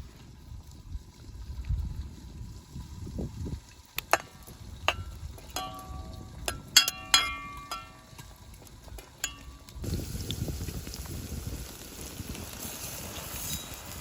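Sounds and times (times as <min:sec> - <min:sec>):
utensils clanking on metal cookware: 0:04.9 - 0:09.7.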